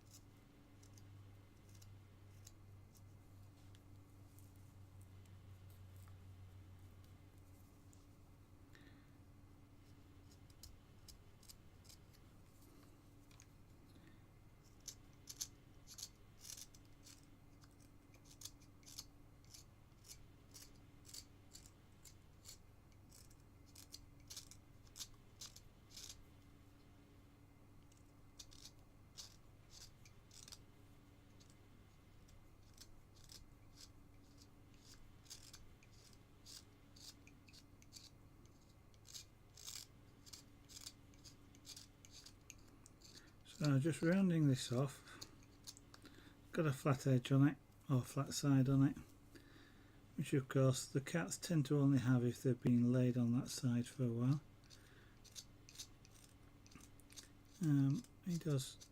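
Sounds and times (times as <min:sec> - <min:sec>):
knife shaving wood: 0:00.0 - 0:03.1, 0:09.8 - 0:26.2, 0:27.9 - 0:30.7, 0:32.2 - 0:46.0, 0:54.1 - 0:58.9
faint low hum: 0:00.0 - 0:58.9.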